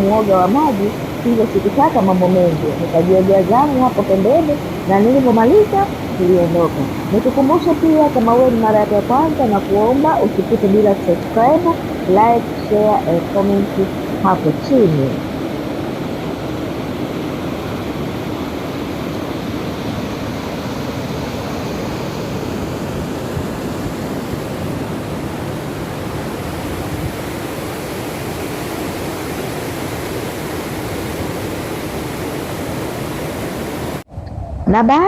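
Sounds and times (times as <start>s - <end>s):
waterfall roar: 0.0s - 34.0s.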